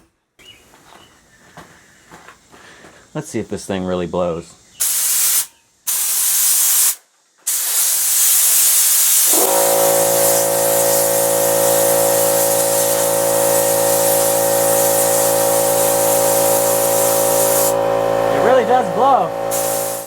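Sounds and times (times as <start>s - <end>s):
air blow gun blasting: 4.8s - 20.0s
air compressor running: 5.9s - 20.0s.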